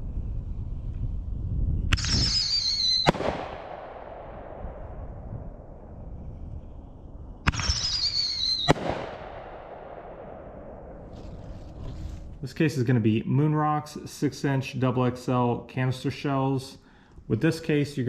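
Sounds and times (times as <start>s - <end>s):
firework air burst: 1.9s - 3.8s, 7.5s - 9.3s
falling high whistle: 2.0s - 3.1s, 7.5s - 8.7s
mortar tube firing bang: 3.0s - 4.9s, 8.7s - 12.0s.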